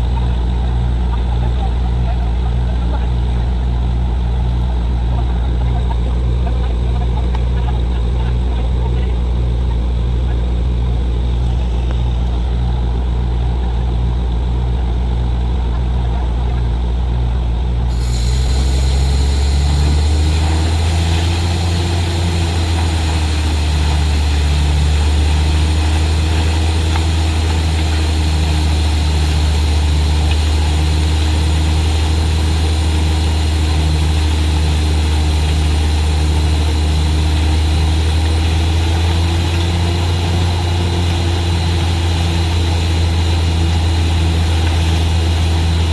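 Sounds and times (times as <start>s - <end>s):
heavy diesel engine running: 0.0s - 45.9s
high hissing: 17.9s - 45.9s.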